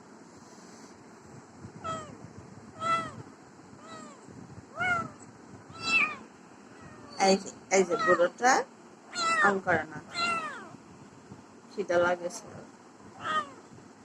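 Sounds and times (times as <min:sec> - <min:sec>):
cat meowing: 0:01.8 - 0:02.2, 0:02.8 - 0:03.2, 0:03.8 - 0:07.2, 0:07.9 - 0:08.3, 0:09.1 - 0:10.8, 0:13.1 - 0:13.6.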